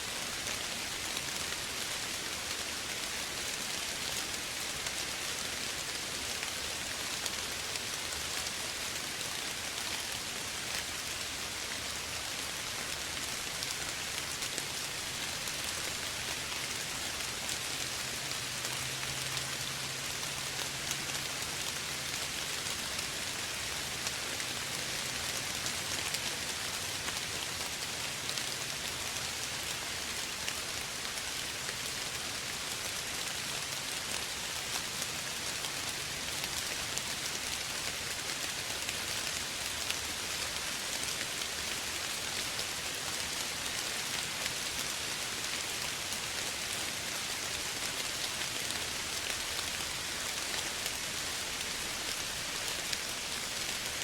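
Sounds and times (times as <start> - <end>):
soft rain falling: 0.0 - 54.0.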